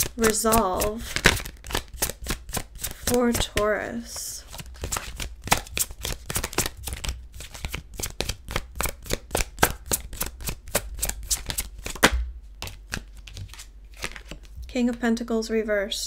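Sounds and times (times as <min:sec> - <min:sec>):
cards being shuffled: 0:00.0 - 0:14.7.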